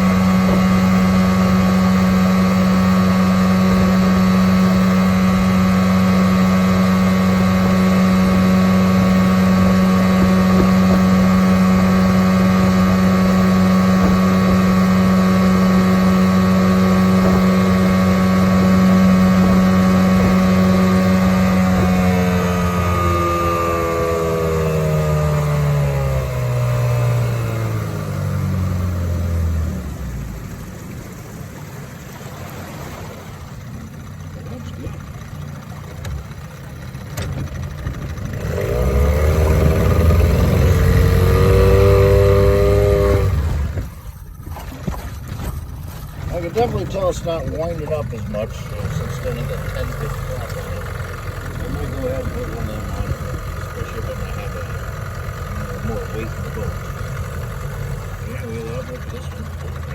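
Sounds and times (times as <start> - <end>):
outboard motor running: 0.0 - 59.9.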